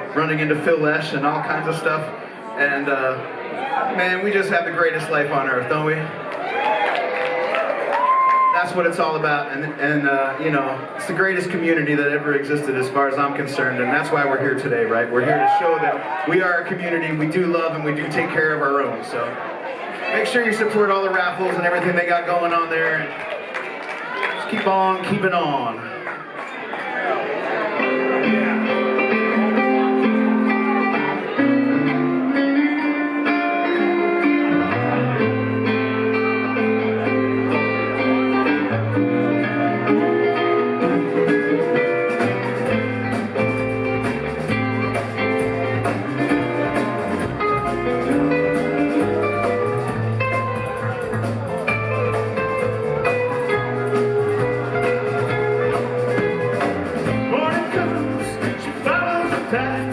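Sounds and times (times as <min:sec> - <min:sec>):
electric guitar: 0:27.3 - 0:59.9
bass line: 0:27.9 - 0:59.9.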